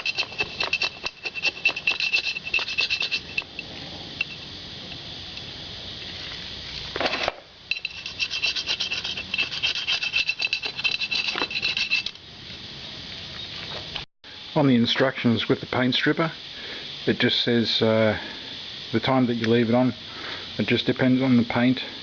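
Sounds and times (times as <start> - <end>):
hand scraper rasping gasket: 0.0 - 3.5, 7.7 - 12.2.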